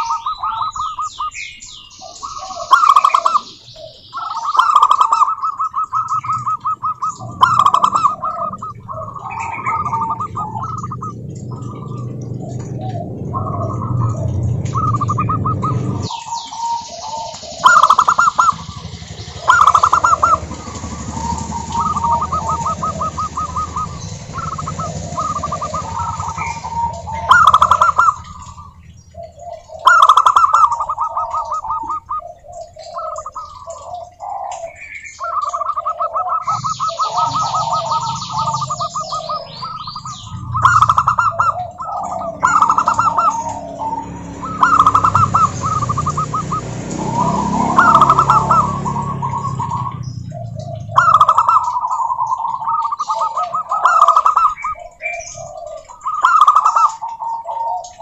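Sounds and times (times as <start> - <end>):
doves cooing: 0.0 - 58.0
low hum: 5.9 - 34.2.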